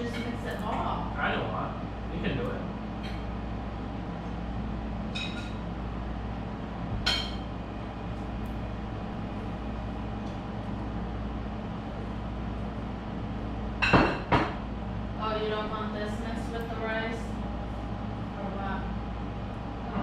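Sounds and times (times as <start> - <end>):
utensil clinking against dishes: 0.0 - 0.9, 5.1 - 5.7, 7.0 - 7.5
steady low hum: 0.0 - 20.0.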